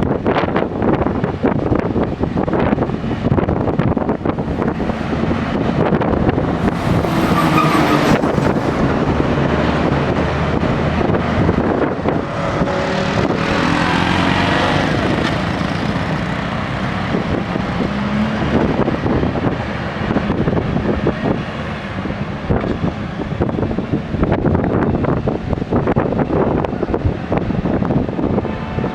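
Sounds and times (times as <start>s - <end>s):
wind buffeting microphone: 0.0s - 28.9s
grader diesel engine running: 2.0s - 24.0s.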